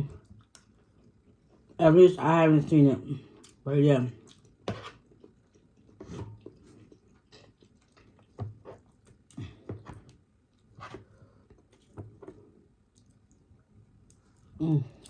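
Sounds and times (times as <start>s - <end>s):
person chewing: 3.3s - 3.6s, 4.2s - 15.0s.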